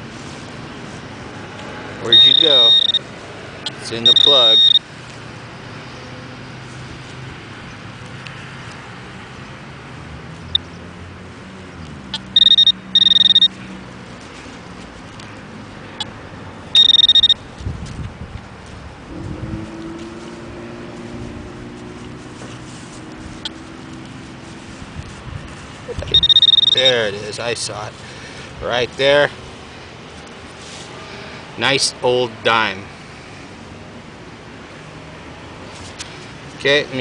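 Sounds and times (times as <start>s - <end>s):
pinpointer shrill alarm tone: 2.0s - 3.0s, 4.0s - 4.8s, 12.2s - 13.6s, 16.8s - 17.4s, 26.0s - 27.0s.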